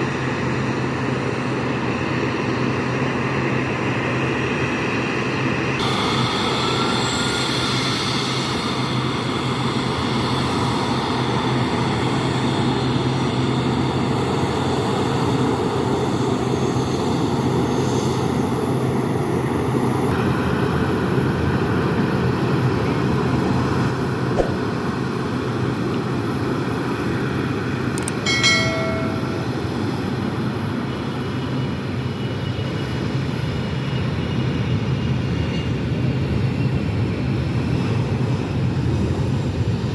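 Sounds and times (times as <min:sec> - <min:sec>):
jet engines running: 0:00.0 - 0:22.5, 0:23.9 - 0:39.9
brief beep: 0:28.0 - 0:29.5.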